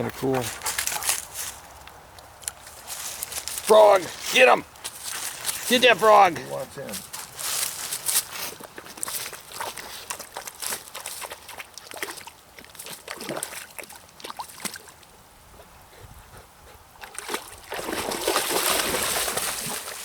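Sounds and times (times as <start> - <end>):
dog splashing in water: 8.5 - 14.9, 17.0 - 20.0.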